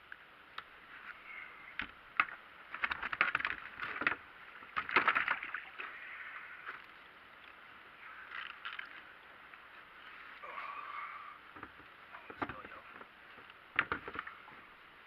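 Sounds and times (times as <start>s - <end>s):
water splashing on kayak: 2.2s - 6.6s.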